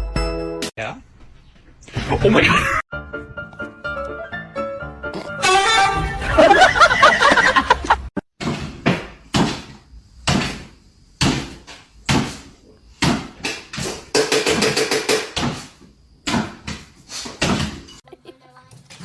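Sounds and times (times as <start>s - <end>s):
sharp ringing knocks: 13.0s - 15.6s.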